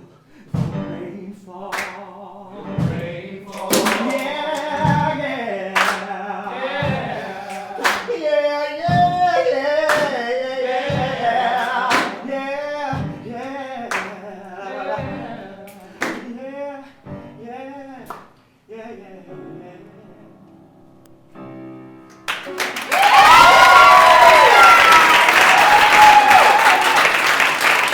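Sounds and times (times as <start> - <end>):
people singing unaccompanied: 0.7 - 16.7
low stomps: 2.8 - 5.3, 12.9 - 13.4
sharp percussive cracks: 3.5 - 4.9.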